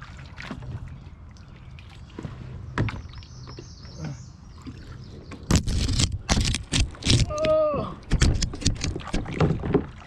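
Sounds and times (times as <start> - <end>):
low water noise: 0.0 - 10.0
paddle splashing water: 0.0 - 10.0
paddle knocking hull: 7.0 - 10.0.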